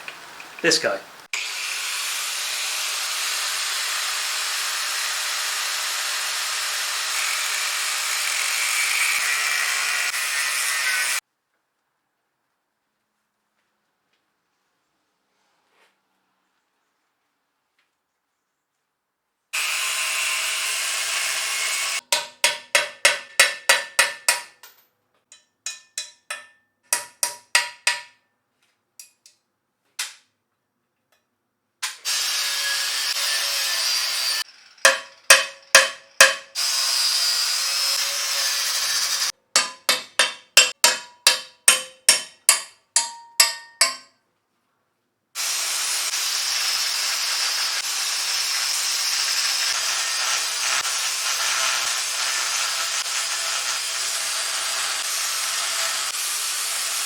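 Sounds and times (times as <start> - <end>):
hissing power tool cutting metal: 0.4 - 11.2, 19.6 - 22.1, 32.0 - 39.3, 45.4 - 57.0.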